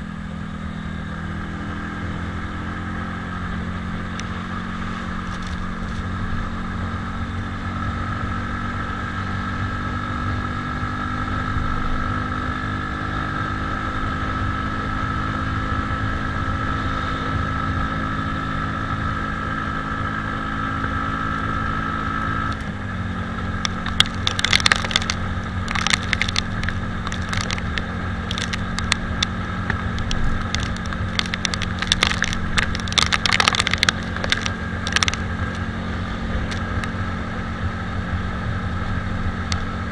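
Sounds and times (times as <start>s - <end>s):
motorcycle engine cruising: 0.0s - 39.9s
sharp crackling ticks: 3.8s - 6.5s, 21.6s - 22.7s, 23.4s - 37.3s, 39.3s - 39.8s.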